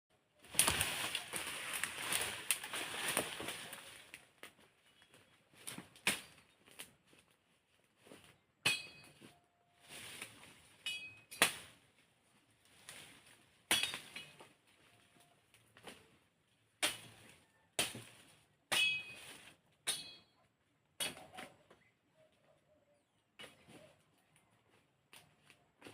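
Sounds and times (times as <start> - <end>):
machete chopping wood: 13.7 - 14.3, 16.8 - 17.2, 17.8 - 19.1.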